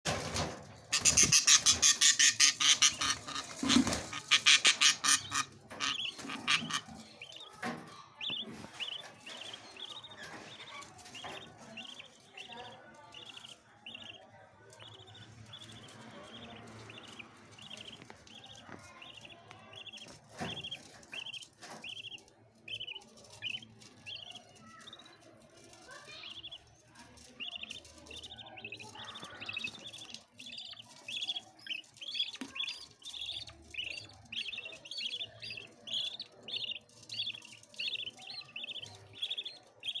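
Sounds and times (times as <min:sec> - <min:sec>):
budgies chirping: 0:00.1 - 0:40.0.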